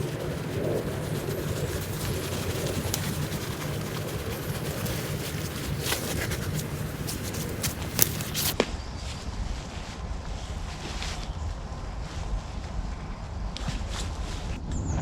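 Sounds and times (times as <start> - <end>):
steady rain in woodland: 0.0 - 8.6.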